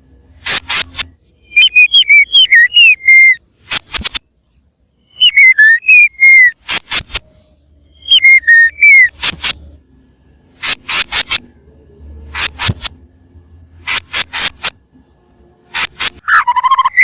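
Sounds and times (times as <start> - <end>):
bird singing whistled notes: 1.0 - 3.4, 4.9 - 6.6, 7.5 - 9.2, 16.2 - 17.0
harsh raspy bird notes: 1.4 - 3.4, 5.0 - 6.6, 7.9 - 9.2.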